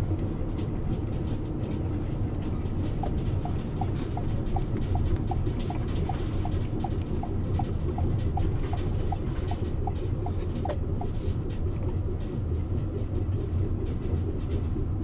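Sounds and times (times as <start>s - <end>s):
car road rumble: 0.0s - 15.0s
light rhythmic ticking: 2.4s - 14.2s.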